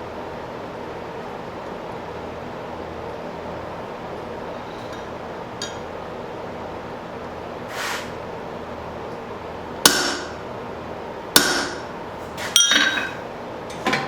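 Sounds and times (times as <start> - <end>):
steady hum: 0.0 - 14.0
brief hiss: 7.7 - 8.2
hammer striking steel: 9.9 - 10.4, 11.4 - 11.9, 12.6 - 13.2.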